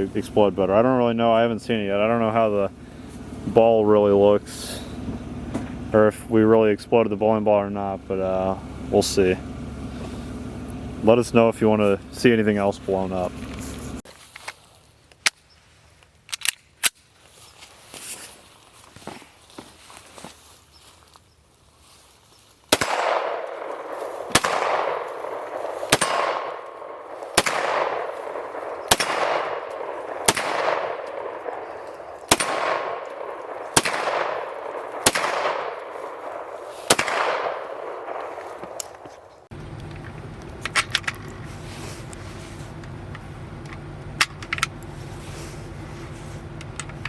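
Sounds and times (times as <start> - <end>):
steady low hum: 0.0 - 14.0, 22.7 - 47.0
gunshots with echo: 22.7 - 39.3.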